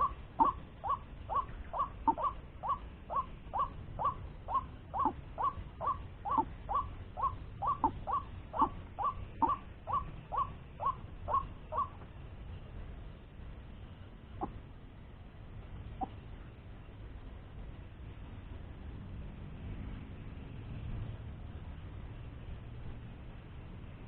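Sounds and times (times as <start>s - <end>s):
bird calling repeated notes: 0.0s - 12.0s.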